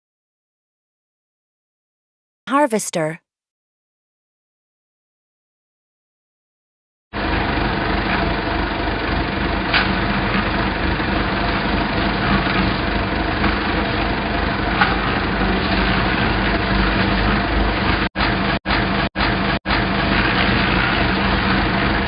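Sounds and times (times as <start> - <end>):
harvester engine running: 7.2 - 22.0.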